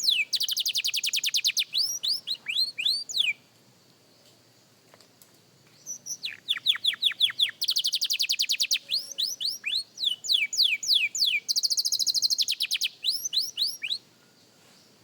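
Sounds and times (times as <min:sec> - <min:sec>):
canary singing trills: 0:00.0 - 0:03.4, 0:05.8 - 0:14.1.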